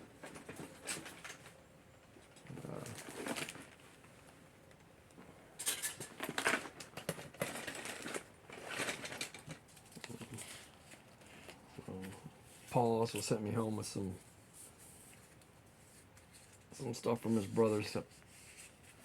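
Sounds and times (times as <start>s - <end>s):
small objects rustling and clicking: 2.4s - 3.8s, 5.6s - 12.2s.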